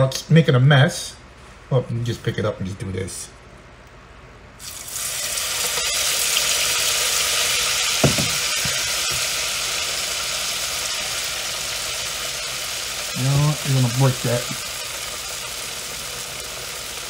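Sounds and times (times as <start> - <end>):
fish frying in oil sizzling: 4.6 - 17.0.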